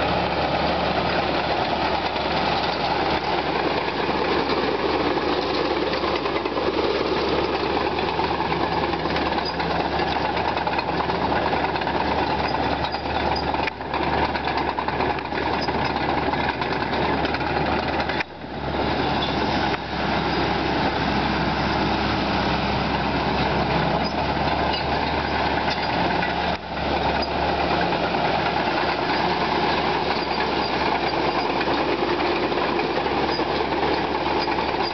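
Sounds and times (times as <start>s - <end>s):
bulldozer diesel engine running: 0.0s - 34.9s.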